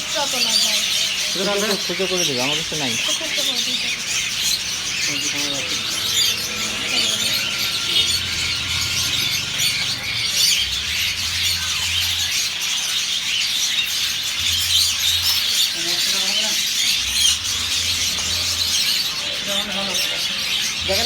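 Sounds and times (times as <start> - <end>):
small birds chirping: 0.0 - 21.0
low hum: 3.3 - 12.4.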